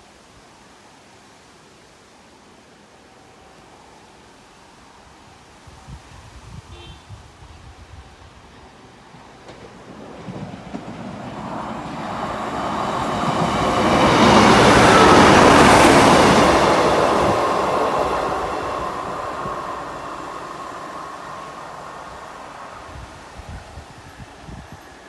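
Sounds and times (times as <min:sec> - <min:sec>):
diesel train engine passing: 0:08.3 - 0:25.0.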